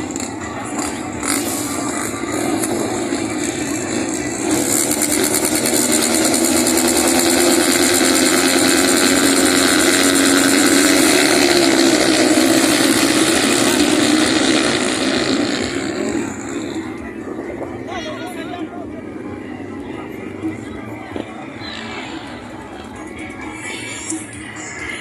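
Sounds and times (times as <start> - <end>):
motorcycle engines racing past: 0.0 - 17.9.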